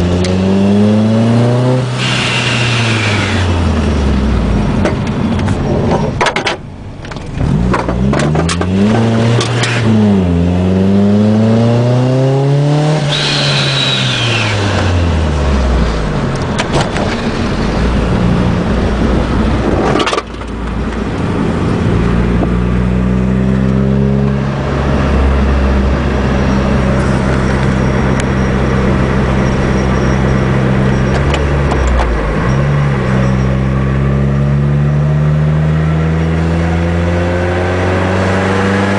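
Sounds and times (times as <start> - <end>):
car engine accelerating: 0.0 - 6.3, 7.2 - 38.9
high whine: 13.0 - 22.6, 24.3 - 34.2.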